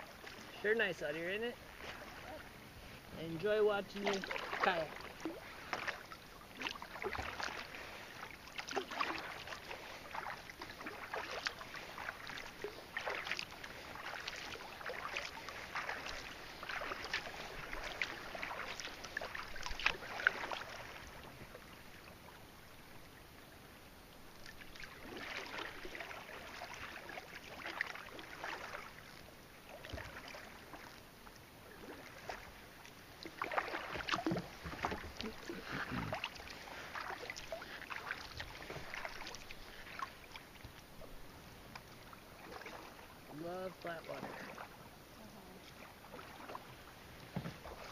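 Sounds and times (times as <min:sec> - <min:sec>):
paddle strokes in water: 0:00.0 - 0:47.9
water dripping off paddle: 0:03.9 - 0:21.4, 0:31.8 - 0:40.9.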